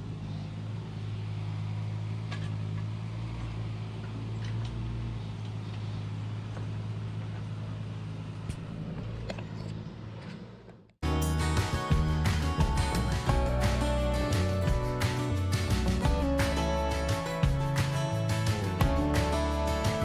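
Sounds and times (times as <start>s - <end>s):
heavy equipment engine running: 11.0s - 20.0s
music: 11.0s - 20.0s.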